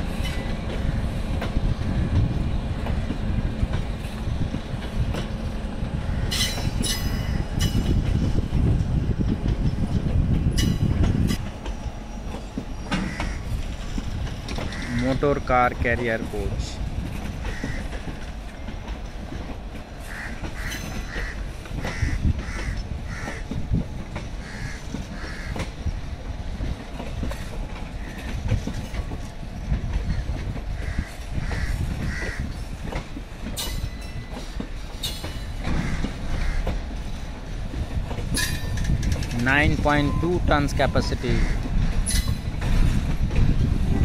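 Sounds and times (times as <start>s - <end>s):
train wheels rumbling on rail: 0.0s - 44.0s
wheels clicking over rail joints: 0.0s - 44.0s
crows cawing: 13.0s - 13.6s, 17.4s - 18.0s, 20.0s - 23.4s, 24.4s - 25.6s, 35.8s - 36.8s.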